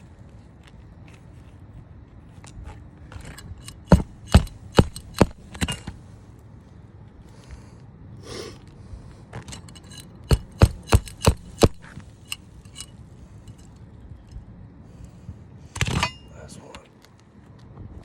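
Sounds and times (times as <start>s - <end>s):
tools scraping shingles: 3.1s - 6.1s, 9.4s - 13.7s, 15.8s - 16.5s
sharp knocks: 3.6s - 6.0s, 9.5s - 12.1s.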